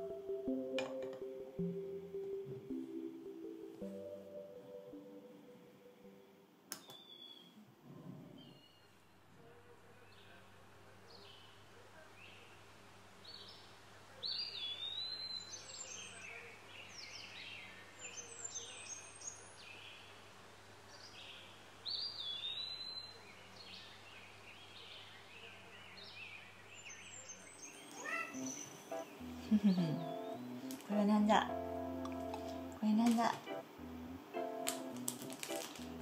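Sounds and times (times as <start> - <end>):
faint steady low hum: 0.0 - 36.0
wild birds chirping and calling: 21.0 - 33.3.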